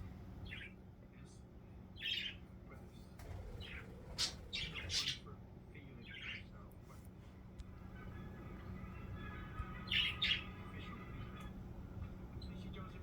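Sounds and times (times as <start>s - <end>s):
budgies chirping and squawking: 3.4s - 5.3s, 8.0s - 11.5s.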